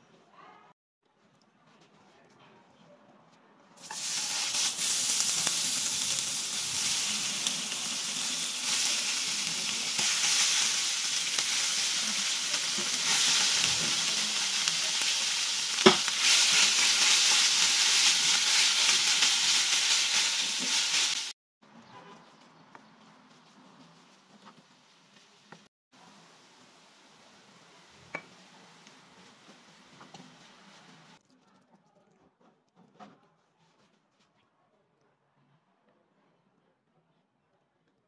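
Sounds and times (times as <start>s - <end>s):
cheese curd sizzling in a pan: 3.8s - 21.4s.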